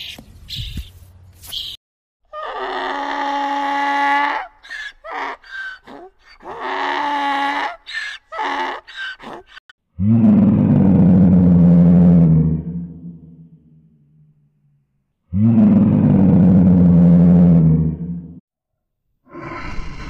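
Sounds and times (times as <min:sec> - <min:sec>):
donkey braying: 0:02.3 - 0:09.6
lion roaring: 0:10.0 - 0:13.3, 0:15.3 - 0:18.3.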